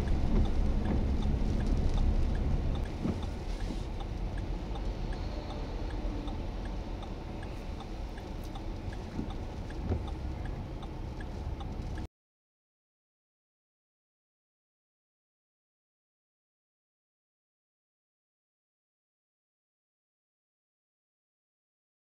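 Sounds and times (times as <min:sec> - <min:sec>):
storm wind: 0:00.0 - 0:12.0
faint ticks: 0:00.0 - 0:12.1
vehicle noise: 0:00.0 - 0:12.1.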